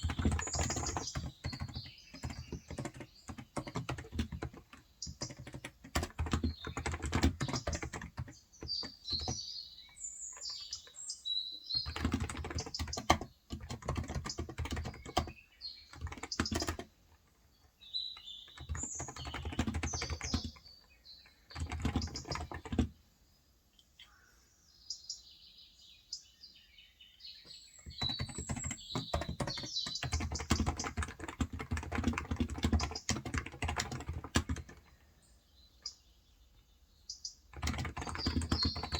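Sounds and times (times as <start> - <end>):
keyboard typing: 0.0 - 9.4, 11.8 - 17.4, 18.1 - 20.7, 21.5 - 23.0, 27.8 - 35.0, 37.5 - 38.9
small birds chirping: 0.0 - 38.9.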